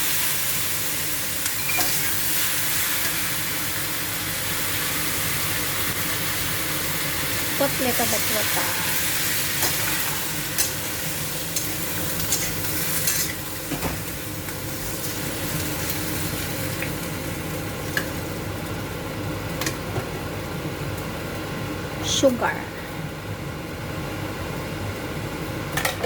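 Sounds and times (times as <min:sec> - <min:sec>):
food sizzling in a pan: 0:00.0 - 0:19.8.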